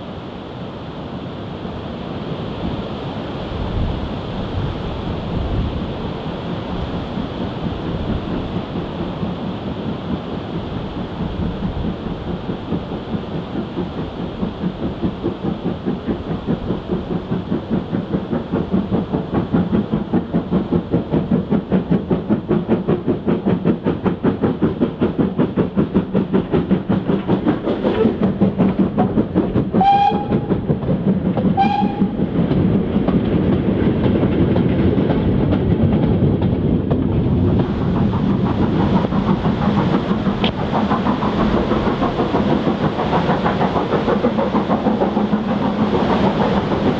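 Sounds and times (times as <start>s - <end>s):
steam locomotive exhaust beats: 1.5s - 46.9s
steam whistle blasts: 29.8s - 30.5s, 31.6s - 32.2s.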